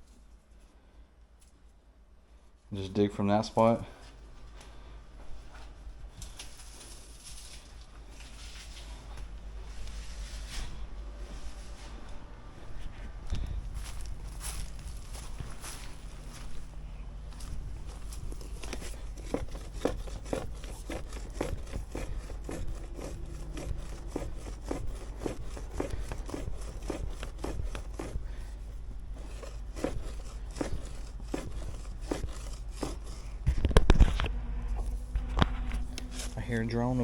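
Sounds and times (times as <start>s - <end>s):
hand tool scraping dirt: 13.8s - 16.7s, 17.3s - 34.0s, 35.9s - 36.6s.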